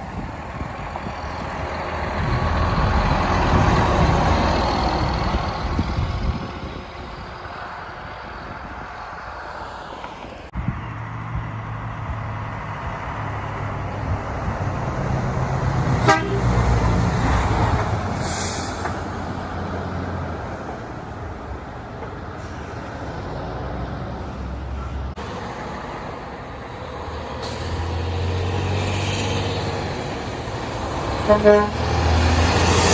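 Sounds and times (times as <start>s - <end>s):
truck horn: 16.0s - 16.8s, 31.1s - 32.2s.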